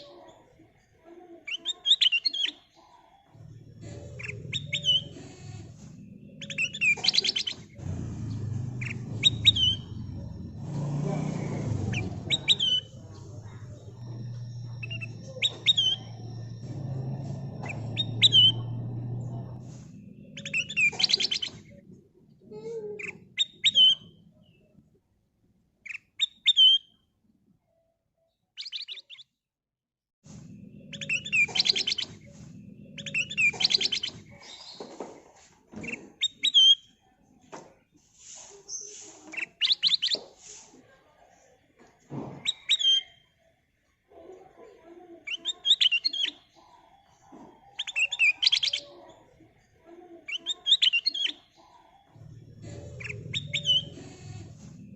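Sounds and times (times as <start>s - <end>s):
bird calling: 3.4s - 21.8s, 30.6s - 34.9s, 52.1s - 54.9s
low steady hum: 3.4s - 22.3s.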